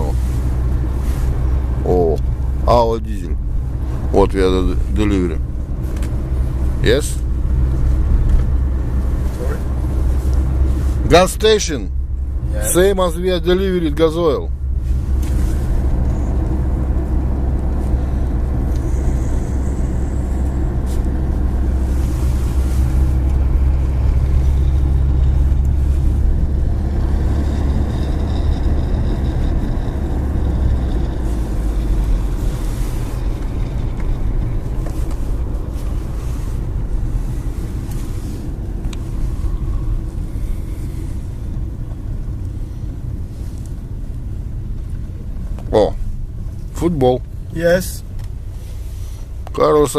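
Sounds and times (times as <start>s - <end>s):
car engine and road rumble: 0.0s - 49.9s.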